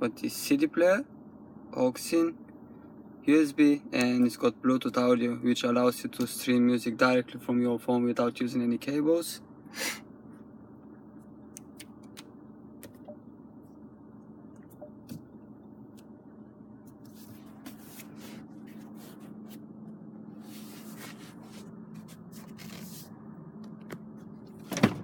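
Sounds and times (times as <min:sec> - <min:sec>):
car cabin hum: 0:10.1 - 0:25.0
handling rustles: 0:16.9 - 0:19.7, 0:20.4 - 0:23.2.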